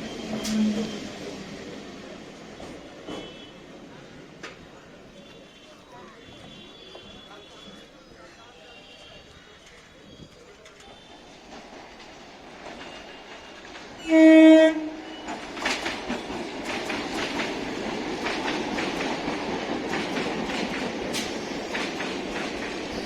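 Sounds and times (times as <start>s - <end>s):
train rumbling past: 0.0s - 5.2s, 9.5s - 23.0s
train horn blast: 14.0s - 15.4s
wheels clattering over rail joints: 15.1s - 23.0s.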